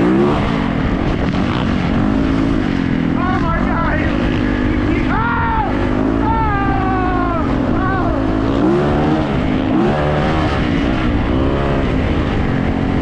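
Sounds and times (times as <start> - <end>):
dirt bike engines revving: 0.0 - 13.0
steady low rumble: 0.0 - 13.0.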